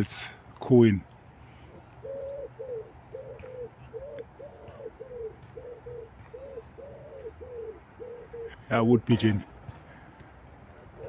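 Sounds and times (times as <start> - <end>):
pigeon cooing: 1.7 - 8.7, 10.7 - 11.0.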